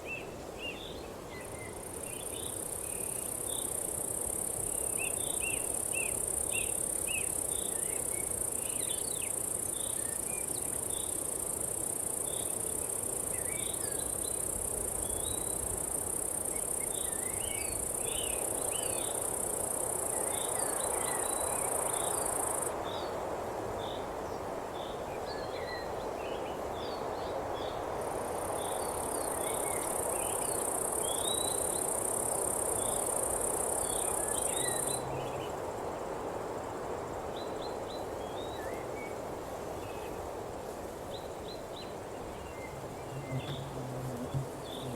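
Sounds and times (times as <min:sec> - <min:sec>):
high-pitched insect trill: 0:01.8 - 0:22.7, 0:28.1 - 0:35.6.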